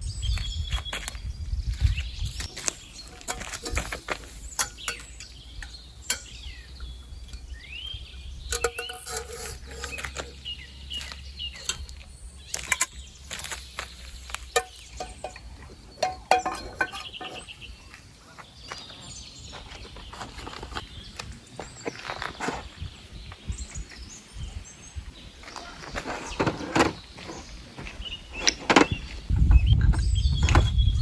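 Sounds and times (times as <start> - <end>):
bird chirps: 0.0 - 31.0
objects being handled clatter: 1.8 - 7.5, 8.5 - 20.8.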